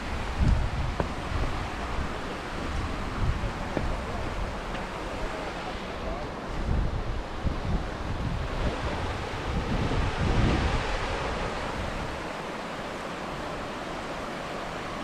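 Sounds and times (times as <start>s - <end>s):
wind buffeting microphone: 0.0s - 14.7s
waterfall rushing: 0.0s - 15.0s.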